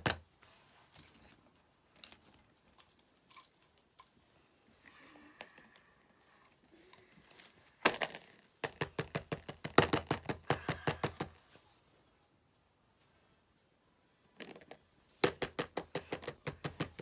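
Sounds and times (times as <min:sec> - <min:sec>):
fidget toy clicks and taps: 0:08.6 - 0:11.4, 0:15.2 - 0:17.0.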